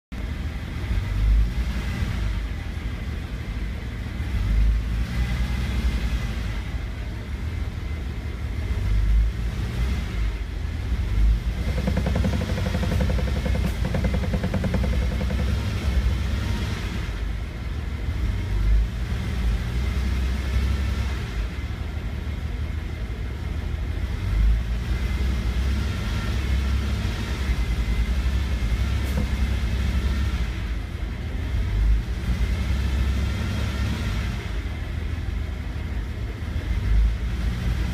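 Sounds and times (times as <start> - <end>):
car engine rumbling: 0.1 - 37.9
dashboard rattling noise: 11.4 - 16.7, 29.0 - 29.9
rapid buzz: 11.4 - 17.2.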